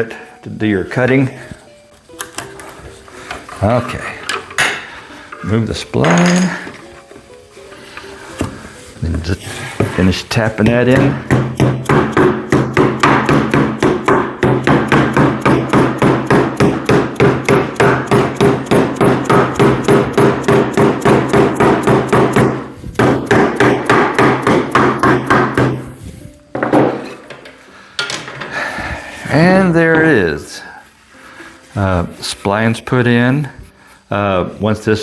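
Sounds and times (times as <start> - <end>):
hammer tapping: 10.6 - 25.9.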